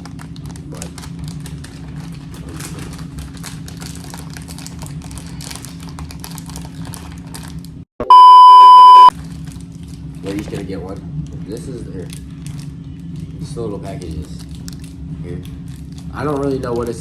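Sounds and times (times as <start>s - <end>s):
plastic packaging crinkling: 0.0s - 7.8s, 12.0s - 17.0s
censor bleep: 8.0s - 9.1s
low hum: 8.1s - 9.1s.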